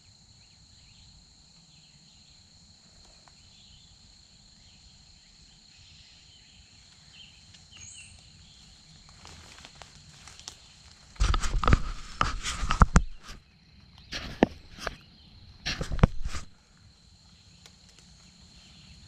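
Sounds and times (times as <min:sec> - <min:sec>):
insects trilling: 0:00.0 - 0:19.0
light rustling and clicks: 0:11.2 - 0:13.4, 0:14.0 - 0:15.0, 0:15.7 - 0:16.5.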